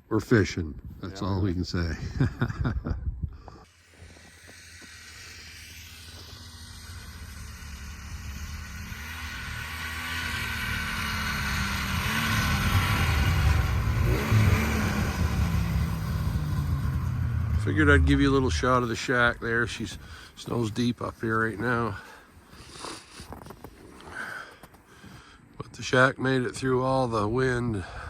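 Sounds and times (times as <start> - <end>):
vehicle engine running: 3.9 - 20.7.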